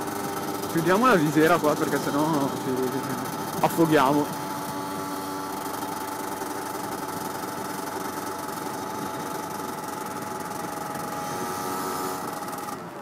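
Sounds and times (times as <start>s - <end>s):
two-stroke motorcycle engine: 0.0s - 13.0s.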